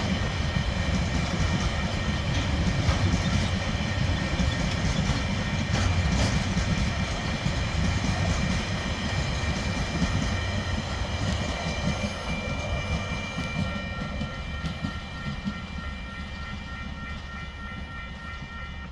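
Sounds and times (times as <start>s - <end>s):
wheels clacking over rail joints: 0.0s - 15.6s
freight train rumbling past: 0.0s - 18.9s
pulsing high tone: 0.0s - 18.9s.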